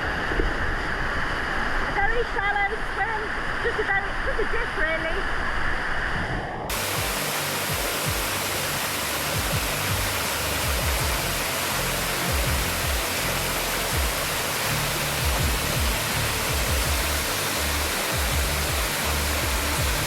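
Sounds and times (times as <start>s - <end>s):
low bass music: 6.7s - 20.0s
waterfall rushing: 6.7s - 20.0s.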